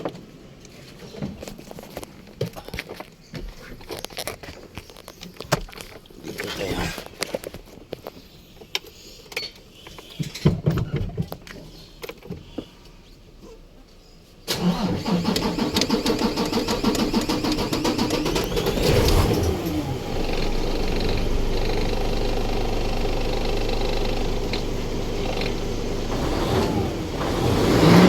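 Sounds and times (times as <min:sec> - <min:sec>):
diesel truck engine running: 0:14.5 - 0:28.0
starter cranking diesel engine: 0:14.5 - 0:28.0.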